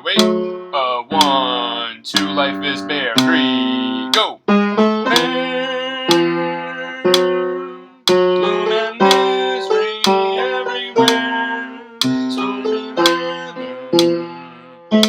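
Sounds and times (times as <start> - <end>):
plucked guitar chords: 0.0 - 5.4, 6.1 - 9.4, 13.9 - 15.0.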